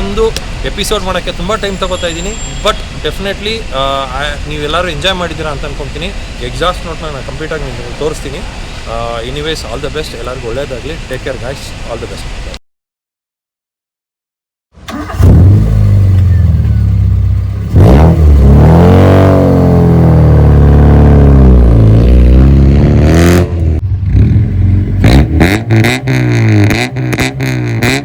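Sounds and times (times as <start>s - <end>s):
car engine revving: 14.9s - 28.0s.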